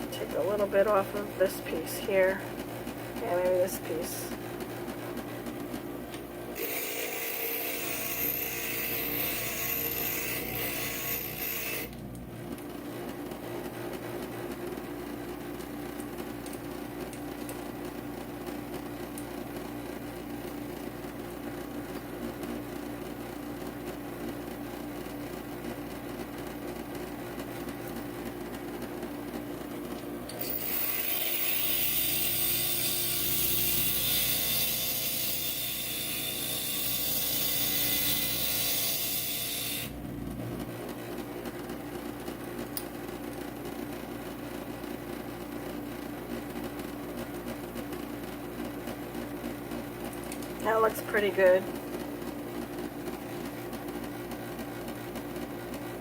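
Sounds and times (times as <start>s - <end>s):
grinder motor running: 6.6s - 12.0s, 30.4s - 40.0s.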